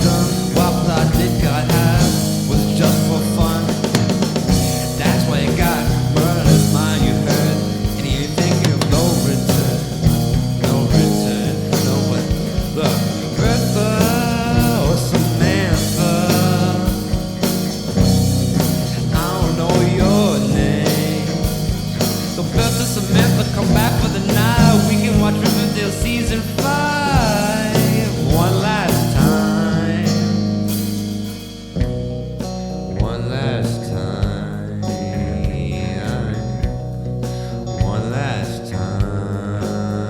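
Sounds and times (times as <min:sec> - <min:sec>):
electric guitar: 0:00.0 - 0:40.0
rock band playing: 0:00.0 - 0:40.0.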